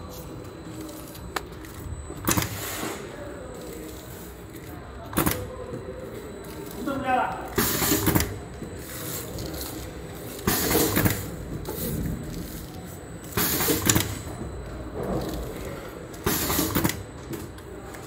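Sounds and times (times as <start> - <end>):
steady low hum: 0.0 - 18.0
packing machine mechanical burst: 7.6 - 8.4, 13.3 - 14.3, 16.2 - 17.1.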